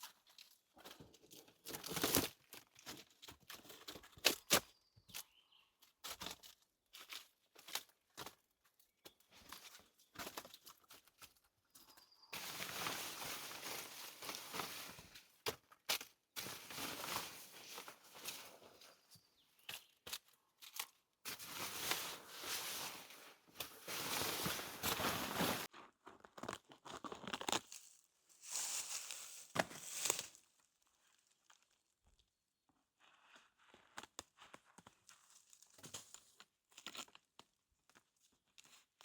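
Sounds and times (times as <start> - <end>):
wood scraping and rustling: 21.3 - 25.7.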